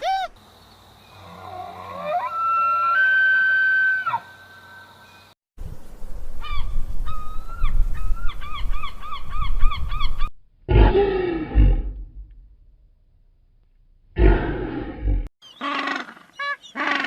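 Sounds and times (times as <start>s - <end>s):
deep animal call: 10.7s - 12.3s.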